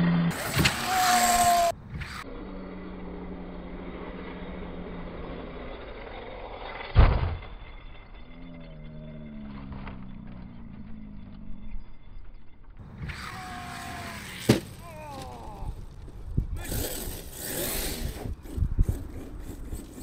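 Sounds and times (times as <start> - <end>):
electric motor whining: 0.3 - 11.6
dirt and gravel rushing: 12.8 - 20.0.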